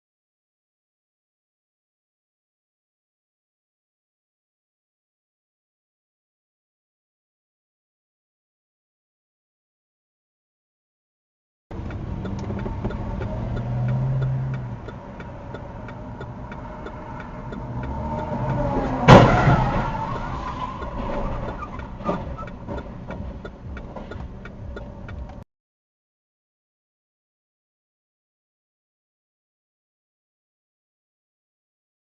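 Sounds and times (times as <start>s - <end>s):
car engine running: 11.7s - 25.4s
steady ticking: 11.7s - 25.4s
vehicles crashing: 11.7s - 25.4s.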